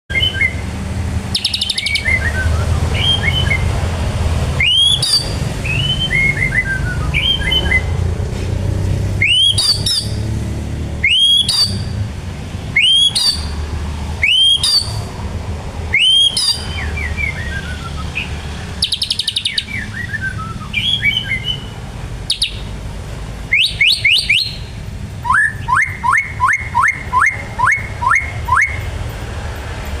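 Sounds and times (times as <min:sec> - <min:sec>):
songbird singing whistles and trills: 0:00.1 - 0:00.6, 0:01.3 - 0:03.8, 0:04.5 - 0:08.0, 0:09.2 - 0:10.3, 0:11.0 - 0:12.0, 0:12.7 - 0:13.6, 0:14.2 - 0:15.1, 0:15.9 - 0:22.7, 0:23.5 - 0:28.9.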